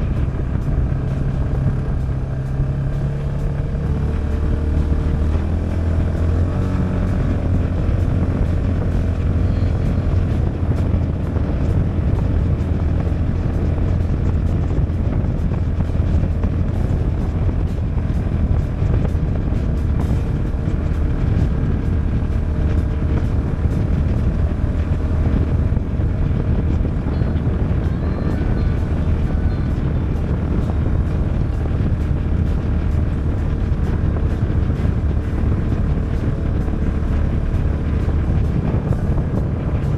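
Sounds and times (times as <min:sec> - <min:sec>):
engine droning while driving: 0:00.0 - 0:39.9.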